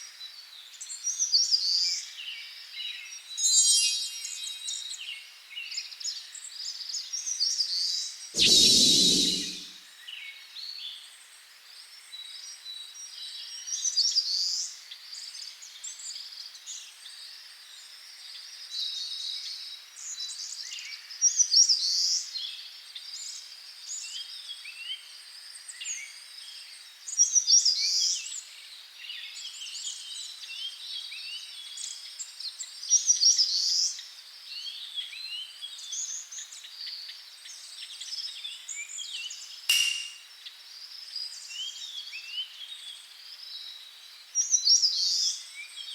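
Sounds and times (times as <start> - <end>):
birds chirping in a chorus: 8.4 - 9.7
loud bird song phrase: 8.4 - 9.7
thin steady high tone: 8.4 - 9.7.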